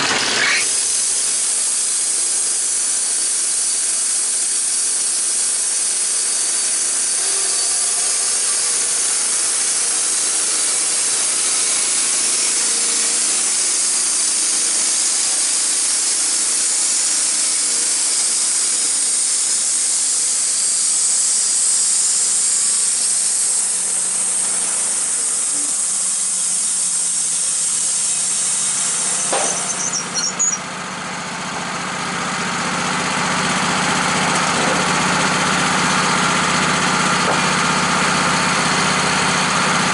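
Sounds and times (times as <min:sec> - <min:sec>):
machine running with loud hiss: 0:00.0 - 0:39.9.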